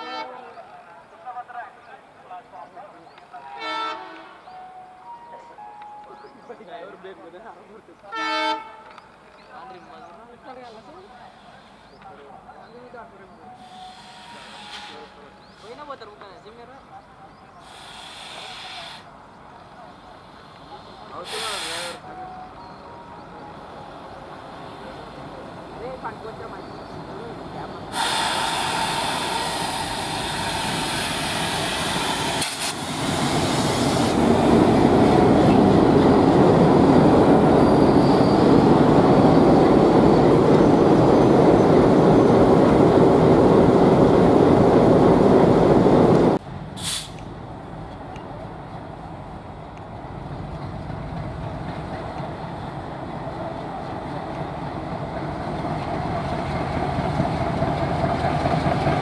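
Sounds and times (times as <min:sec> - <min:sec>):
diesel locomotive approaching: 0:00.0 - 0:59.0
diesel locomotive engines: 0:00.0 - 0:59.0
coach wheels running over rails: 0:49.6 - 0:59.0.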